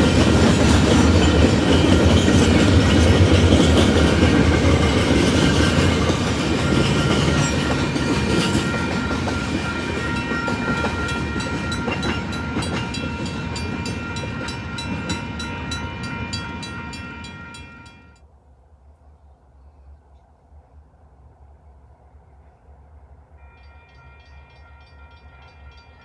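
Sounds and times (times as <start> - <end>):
train rumble: 0.0 - 18.2.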